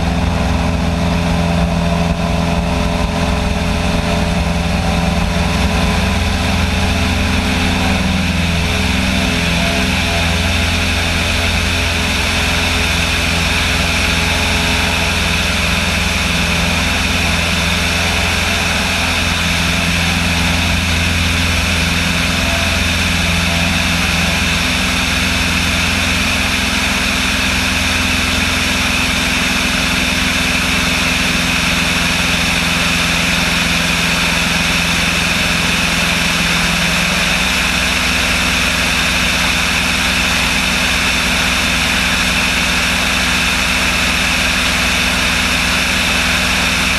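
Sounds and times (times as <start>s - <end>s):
propeller aircraft engine droning: 0.0s - 46.9s.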